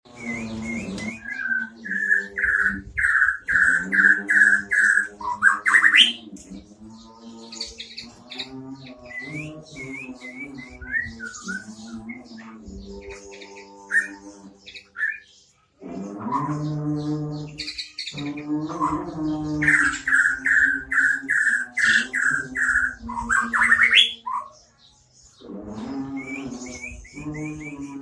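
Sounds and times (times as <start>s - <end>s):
soft bird chirping: 0.0s - 28.0s
bird singing whistled notes: 0.1s - 6.2s, 7.6s - 12.5s, 26.1s - 28.0s.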